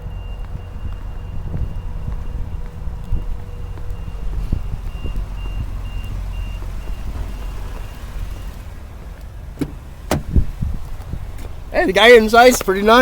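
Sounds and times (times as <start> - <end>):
reversing alarm beeping: 0.0 - 8.6
low engine rumble: 0.0 - 13.0.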